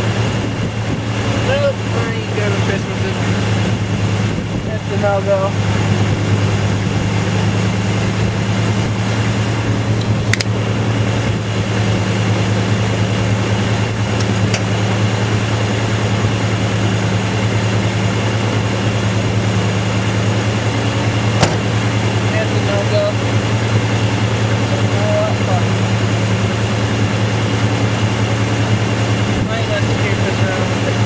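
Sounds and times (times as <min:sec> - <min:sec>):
car engine idling: 0:00.0 - 0:31.0
sharp clicks: 0:10.0 - 0:10.6.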